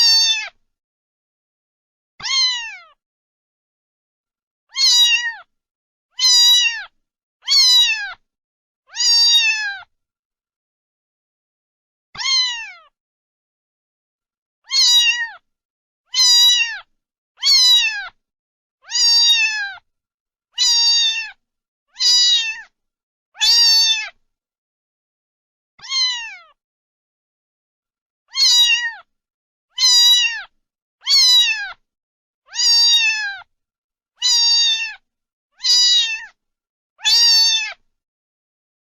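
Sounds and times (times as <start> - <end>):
cat meowing: 0.0 - 0.6, 2.2 - 3.0, 4.7 - 5.5, 6.2 - 8.2, 8.9 - 9.9, 12.2 - 13.0, 14.6 - 15.4, 16.1 - 18.2, 18.8 - 19.8, 20.6 - 21.4, 22.0 - 22.7, 23.4 - 24.2, 25.8 - 26.6, 28.3 - 29.1, 29.7 - 31.8, 32.5 - 33.5, 34.2 - 35.0, 35.6 - 36.4, 37.0 - 37.8.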